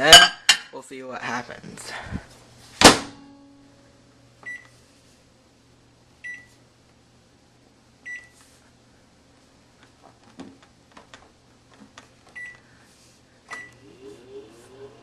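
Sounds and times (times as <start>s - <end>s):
microwave keypad beeps: 4.4s - 4.7s, 6.2s - 6.5s, 8.1s - 8.3s, 12.4s - 12.6s, 13.5s - 13.8s.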